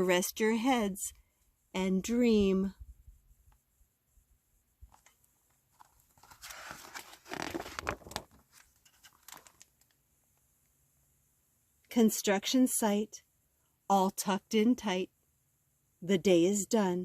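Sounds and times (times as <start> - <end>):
book page rustling: 5.7 - 9.9.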